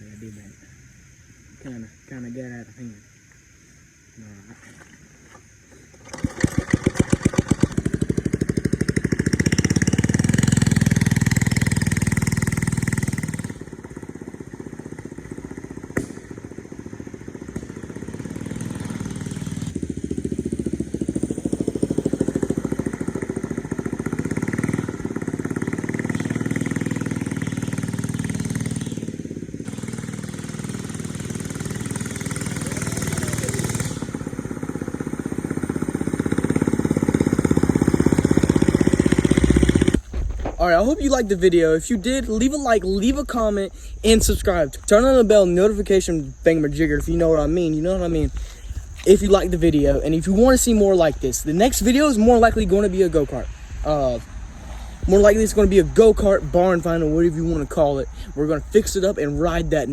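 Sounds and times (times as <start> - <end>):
mini bike engine revving: 5.8 - 59.9.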